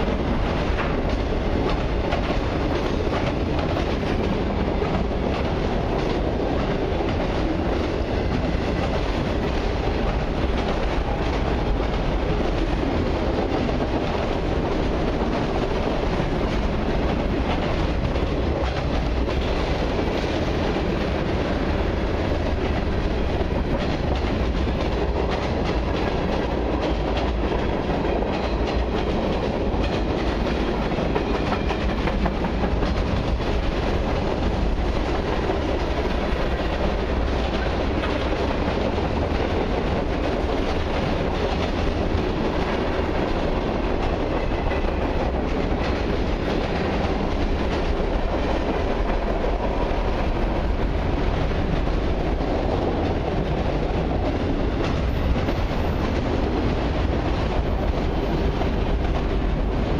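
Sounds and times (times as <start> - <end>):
train wheels rumbling on rail: 0.0 - 59.9
wheels clicking over rail joints: 0.1 - 59.9.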